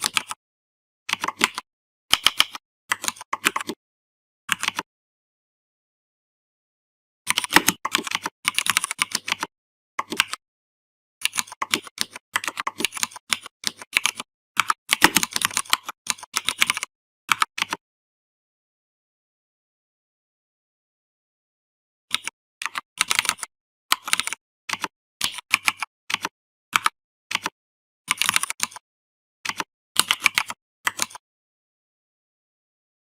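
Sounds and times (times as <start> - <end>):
typing on computer keyboard: 0.0 - 0.4, 1.1 - 3.8, 4.5 - 4.9, 7.3 - 10.4, 11.2 - 17.8, 22.1 - 28.8, 29.4 - 31.2.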